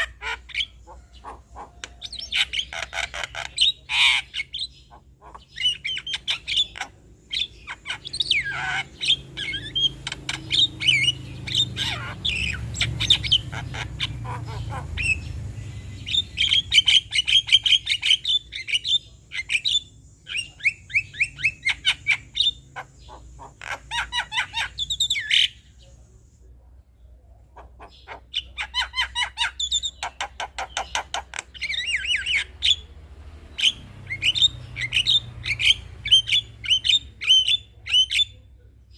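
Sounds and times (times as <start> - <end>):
myna chattering song: 0.0 - 18.2.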